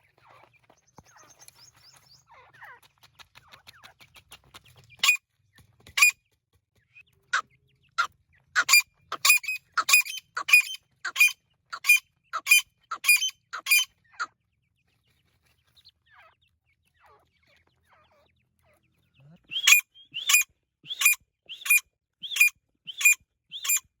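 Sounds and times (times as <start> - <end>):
partridge calling: 5.0 - 5.2, 8.6 - 14.3, 19.5 - 23.8.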